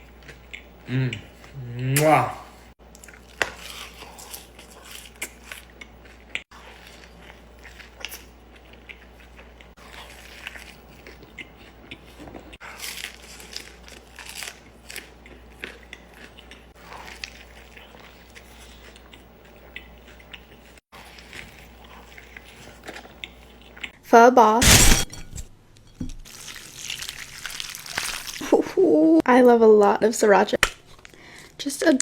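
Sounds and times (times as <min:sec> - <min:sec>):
crunchy biting and chewing: 0:02.9 - 0:23.6, 0:24.6 - 0:25.2, 0:26.3 - 0:28.5.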